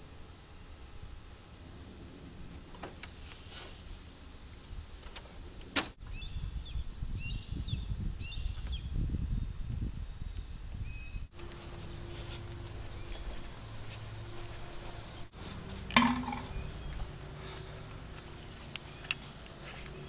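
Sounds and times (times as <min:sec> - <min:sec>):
small birds chirping: 0:06.0 - 0:15.7, 0:16.4 - 0:20.0.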